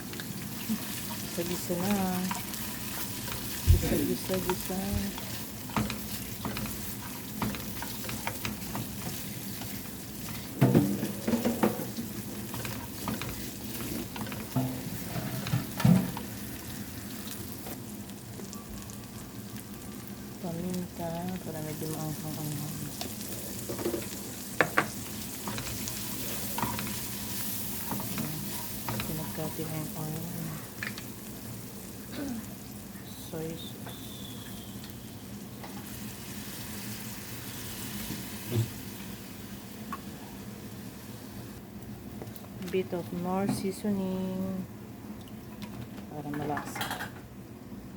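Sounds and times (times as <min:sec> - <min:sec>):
stirring utensil strokes: 0:00.0 - 0:17.8, 0:21.2 - 0:31.5
food sizzling in oil in a pan: 0:00.0 - 0:41.6.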